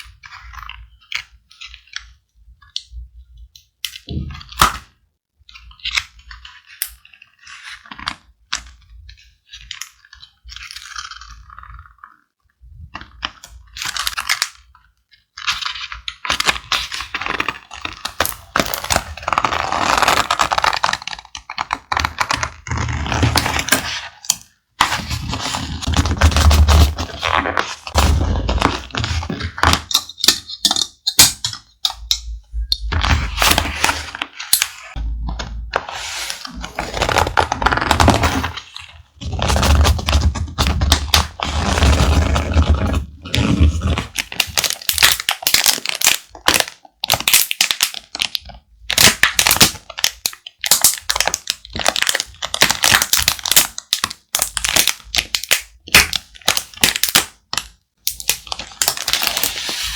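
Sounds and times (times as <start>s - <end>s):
paper rustling: 32.9s - 44.1s, 58.8s - 59.9s.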